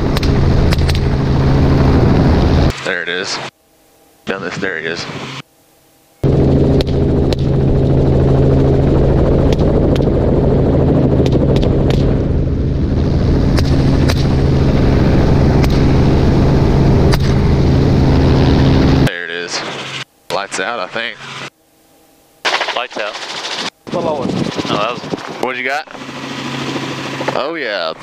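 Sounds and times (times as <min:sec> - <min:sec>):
helicopter engine and rotor: 0:00.0 - 0:05.5, 0:06.1 - 0:21.5, 0:22.4 - 0:28.0
rifle shots: 0:22.5 - 0:23.2.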